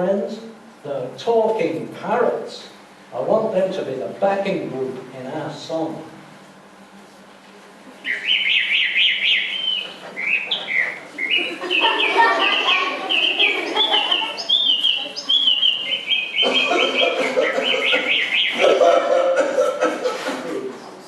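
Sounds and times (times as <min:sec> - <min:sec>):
birds chirping and trilling: 0:08.0 - 0:19.4.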